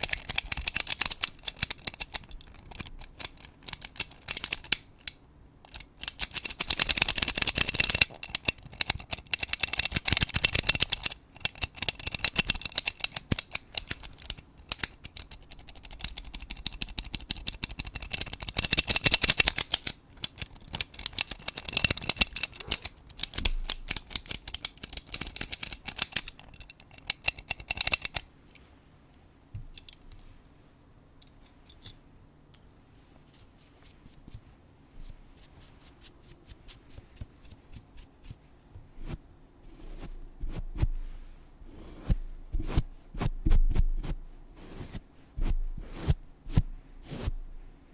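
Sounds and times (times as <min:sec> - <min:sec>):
crickets chirring: 0:00.0 - 0:47.9
close scratching and brushing: 0:32.9 - 0:47.4.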